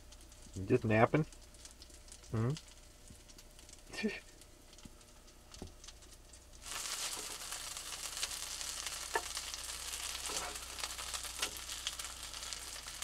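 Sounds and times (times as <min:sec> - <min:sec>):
crackles and pops: 0:00.0 - 0:13.0
food sizzling in a pan: 0:00.0 - 0:13.0.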